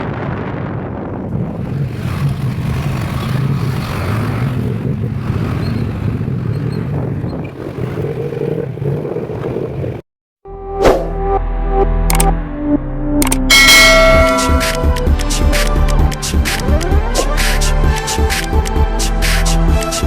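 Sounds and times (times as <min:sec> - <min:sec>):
road noise: 0:00.0 - 0:10.0, 0:13.2 - 0:20.0
vehicle engine running: 0:01.3 - 0:10.0, 0:13.7 - 0:20.0.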